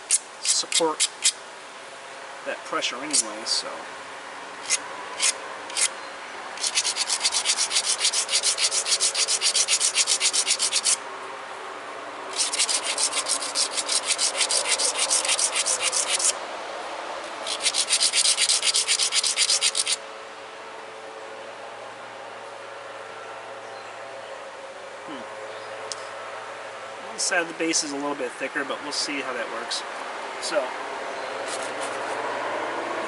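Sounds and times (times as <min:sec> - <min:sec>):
stone scraping against abrader: 0:04.6 - 0:05.9, 0:06.6 - 0:11.0, 0:12.3 - 0:16.4, 0:17.4 - 0:20.0, 0:31.4 - 0:32.2.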